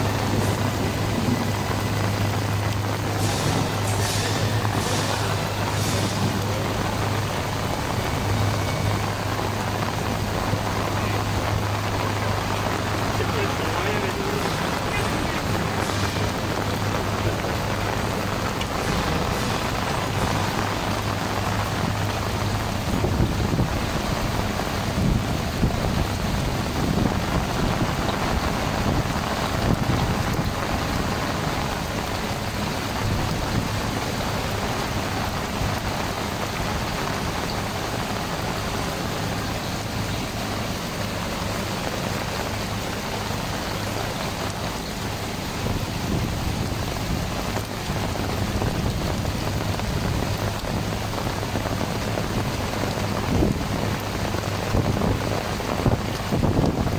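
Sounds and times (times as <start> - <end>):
low rumble: 0.0 - 34.1
heavy rain pouring: 0.0 - 56.9.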